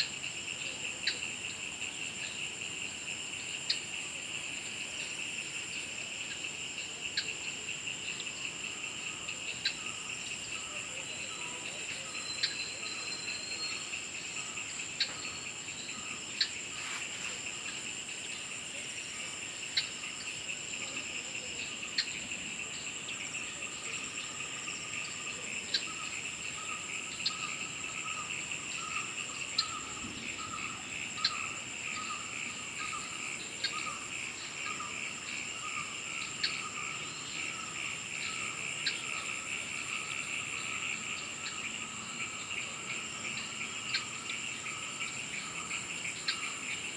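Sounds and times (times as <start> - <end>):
insects trilling: 0.0 - 46.9
pulsing low insect trill: 0.0 - 46.9.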